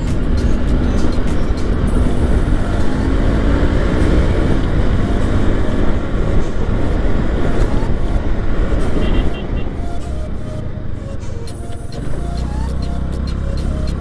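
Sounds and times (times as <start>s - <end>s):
scooter engine running: 0.0s - 9.7s
road rumble: 0.0s - 14.0s.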